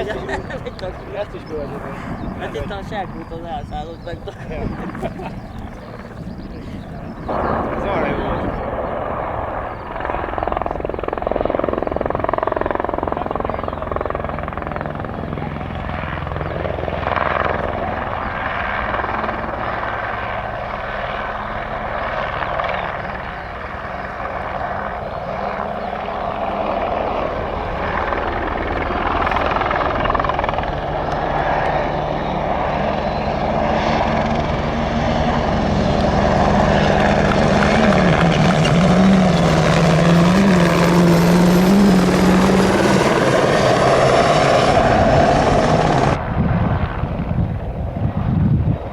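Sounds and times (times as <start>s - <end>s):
helicopter flying over: 0.0s - 48.9s
wavering hum: 27.9s - 47.0s.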